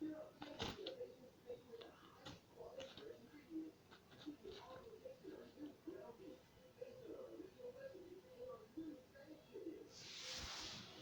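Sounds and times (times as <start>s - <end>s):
faint muffled voice murmuring: 0.0s - 11.0s.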